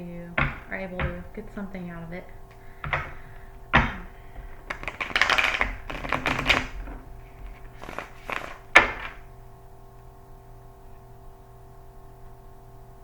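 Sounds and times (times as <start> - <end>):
cards being shuffled: 2.5 - 9.3
cards slapping: 2.5 - 9.3.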